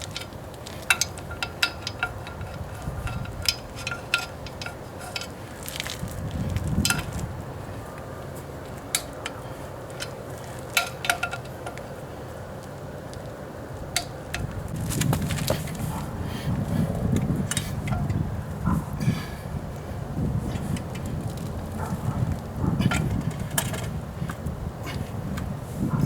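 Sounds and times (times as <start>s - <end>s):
low rumble of handling: 13.9s - 26.0s.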